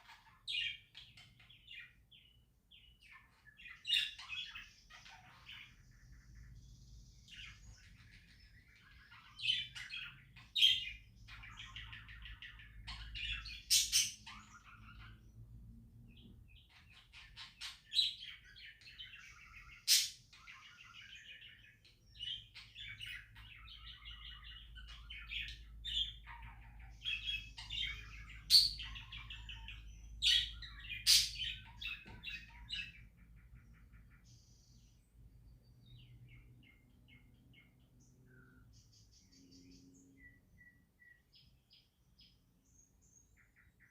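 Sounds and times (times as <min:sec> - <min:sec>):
budgerigars chirping and chattering: 0:00.0 - 0:43.9
sharp loud bird calls: 0:16.6 - 0:34.2.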